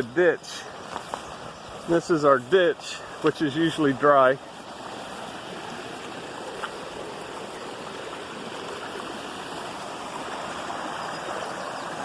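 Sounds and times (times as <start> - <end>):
water rushing down ditch: 0.0 - 12.0.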